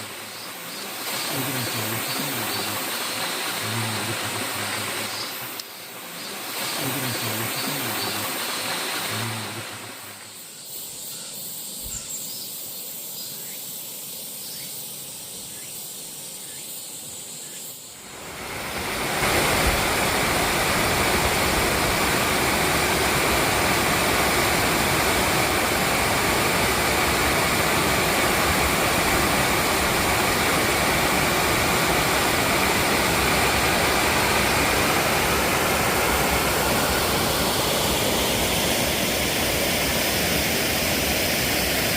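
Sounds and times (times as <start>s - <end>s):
waterfall rushing: 0.0s - 10.4s, 18.0s - 41.9s.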